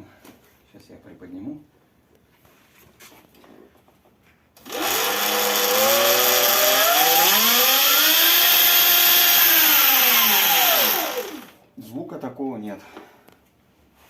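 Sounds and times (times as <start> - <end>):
electric motor whine: 4.6 - 11.6.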